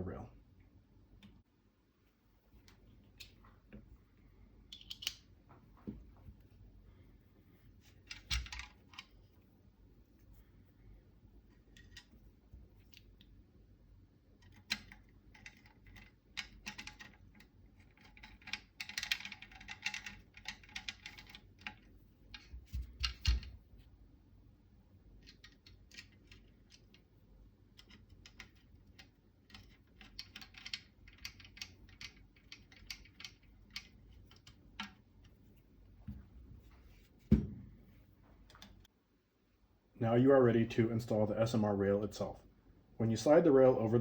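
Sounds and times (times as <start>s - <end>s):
heavy knock: 37.3s - 37.7s.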